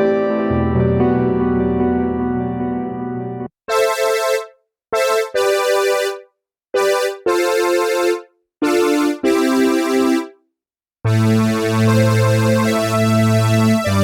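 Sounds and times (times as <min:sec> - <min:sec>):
bright synthesizer chords: 0:03.2 - 0:06.2, 0:06.8 - 0:10.3, 0:11.1 - 0:14.0.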